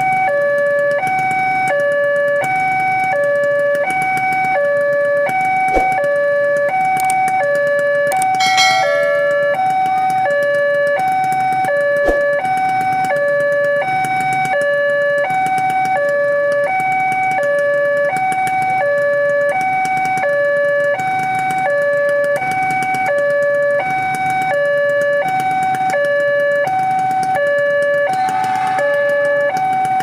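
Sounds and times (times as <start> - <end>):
two-tone crossing alarm: 8.4 - 9.8.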